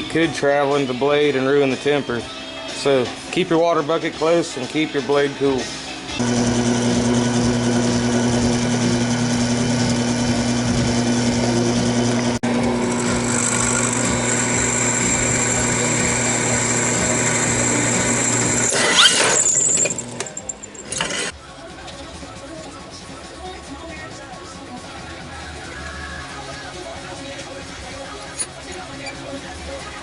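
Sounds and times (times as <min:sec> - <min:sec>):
electric grinder running: 0:06.2 - 0:21.3
high whine of steel grinding: 0:06.2 - 0:21.3.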